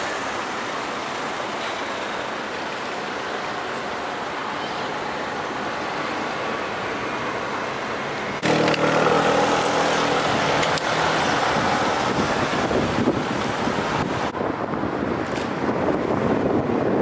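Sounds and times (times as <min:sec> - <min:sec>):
road and wind noise: 0:00.0 - 0:17.0
vehicle engine running close: 0:08.4 - 0:14.4.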